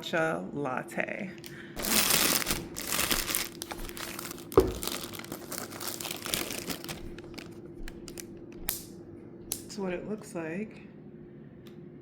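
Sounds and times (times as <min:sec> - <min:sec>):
packaging crinkling: 0:01.8 - 0:08.8.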